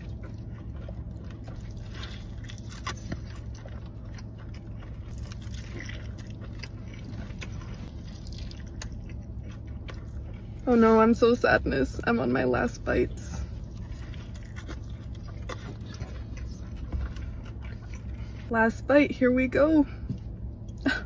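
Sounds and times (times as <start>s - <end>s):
person chewing food: 0.0s - 10.7s, 12.9s - 18.5s
steady low hum: 0.0s - 21.0s.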